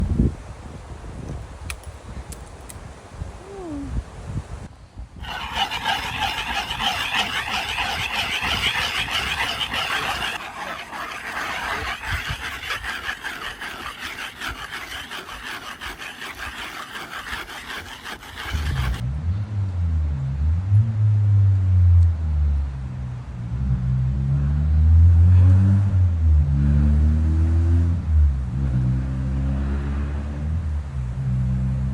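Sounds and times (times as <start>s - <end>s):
can scraping on rough surface: 5.2s - 19.0s
loud low droning: 18.9s - 31.7s.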